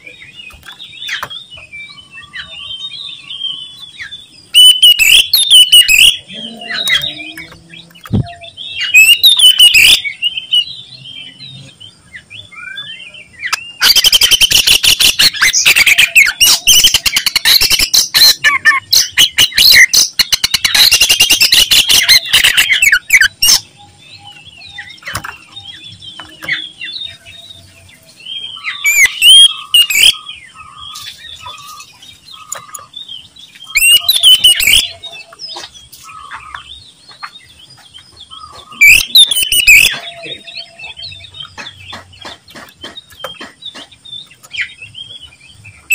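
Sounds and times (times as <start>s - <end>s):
bird singing whistled phrases: 4.6s - 7.5s, 8.2s - 10.6s, 28.5s - 30.2s, 33.7s - 35.2s, 38.7s - 40.9s.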